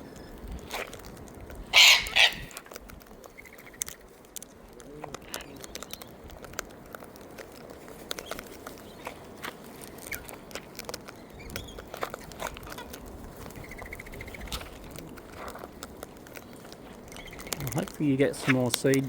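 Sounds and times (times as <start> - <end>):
harsh bird calls: 1.6 - 6.3, 8.0 - 15.4, 16.1 - 19.0
small clicks and taps: 2.5 - 19.0.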